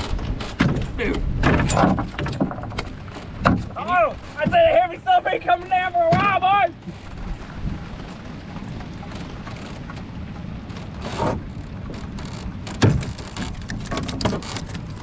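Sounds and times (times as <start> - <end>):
rain on water and boat: 0.0 - 15.0
wind buffeting microphone: 0.0 - 15.0
knocks: 12.7 - 14.4.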